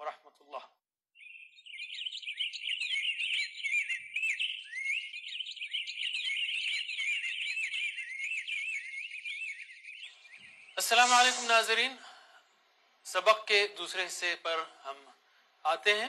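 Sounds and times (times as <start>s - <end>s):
birdsong chirping and warbling: 1.2s - 11.8s.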